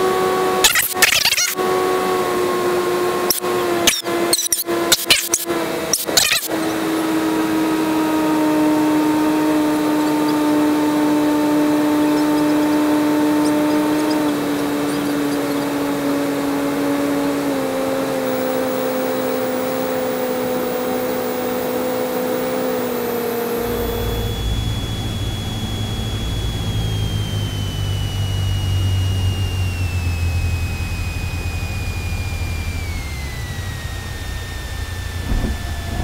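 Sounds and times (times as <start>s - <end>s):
plane piston engine droning: 0.0s - 36.0s
thin high whine: 0.6s - 1.6s, 3.2s - 6.8s, 18.0s - 36.0s
heavy low rumble: 35.0s - 36.0s.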